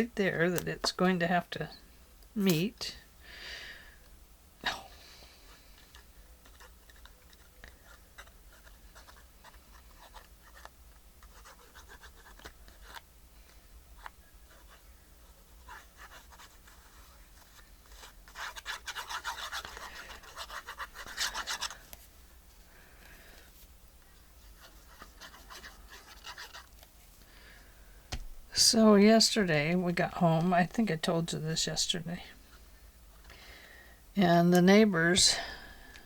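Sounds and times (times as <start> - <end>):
paper rustling and rubbing: 6.4 - 13.0, 14.0 - 22.1, 24.4 - 27.1
scratchy rubbing strokes on paper: 6.4 - 13.0, 14.0 - 21.8, 24.4 - 26.7.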